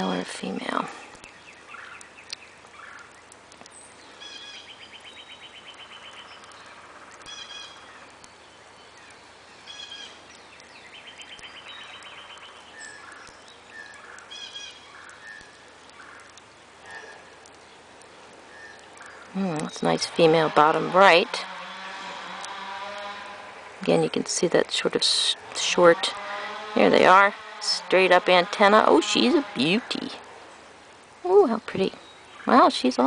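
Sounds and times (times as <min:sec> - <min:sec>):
bird trills: 0:01.2 - 0:17.8.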